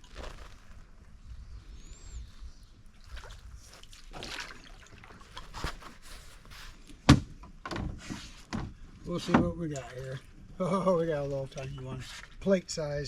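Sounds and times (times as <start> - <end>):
water splashing and trickling: 2.8 - 6.5, 9.1 - 13.0.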